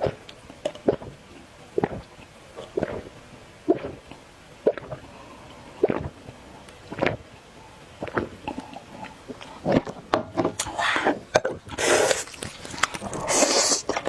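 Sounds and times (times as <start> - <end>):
noodle slurping: 5.8 - 6.2, 8.0 - 14.0
chewing: 8.0 - 14.0.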